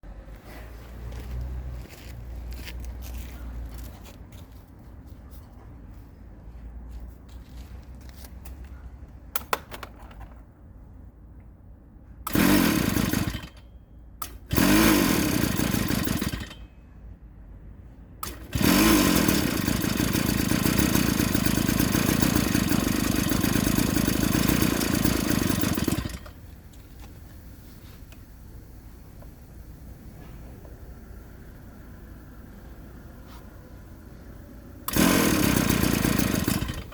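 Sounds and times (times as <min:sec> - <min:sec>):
two-stroke engine starting: 0:12.2 - 0:16.7, 0:18.2 - 0:26.6, 0:34.8 - 0:36.9.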